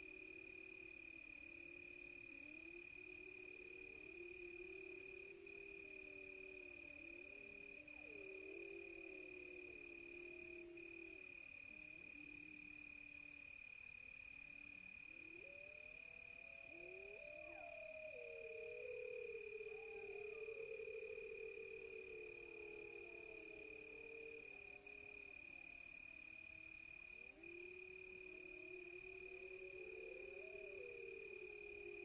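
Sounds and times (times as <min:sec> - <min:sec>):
cricket trill: 0:00.0 - 0:32.0
insects chirping: 0:00.0 - 0:32.0
wolves howling far off: 0:02.2 - 0:11.2, 0:15.1 - 0:32.0.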